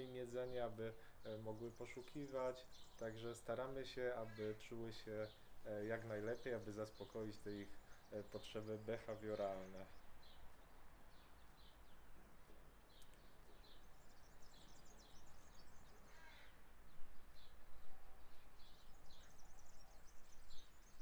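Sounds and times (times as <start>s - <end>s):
faint outdoor background noise: 0.0s - 21.0s
small bird chirping: 5.2s - 21.0s.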